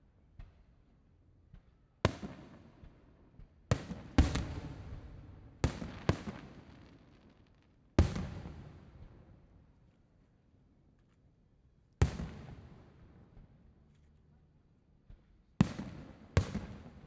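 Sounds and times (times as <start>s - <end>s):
rolling echo: 3.8s - 9.5s.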